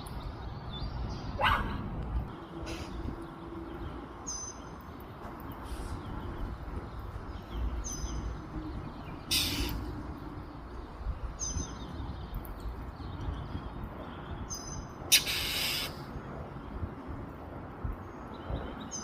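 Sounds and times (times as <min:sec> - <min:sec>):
loud harsh hiss: 0:09.3 - 0:09.8, 0:15.1 - 0:16.0
short high bird chirps: 0:09.3 - 0:09.9, 0:15.1 - 0:16.0.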